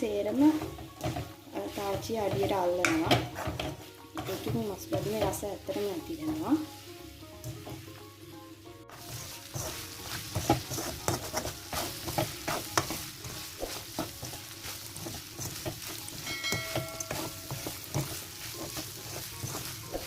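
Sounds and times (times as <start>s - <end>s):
chicken frying and sizzling: 0.0s - 20.0s
spoon stirring and scraping: 0.4s - 6.4s, 8.9s - 20.0s
spoon knocking against pan: 0.6s - 5.4s, 15.0s - 18.8s.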